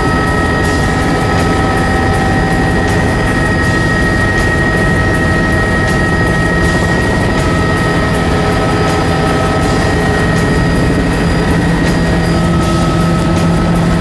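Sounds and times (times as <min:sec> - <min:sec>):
helicopter engine and rotor: 0:00.0 - 0:14.0.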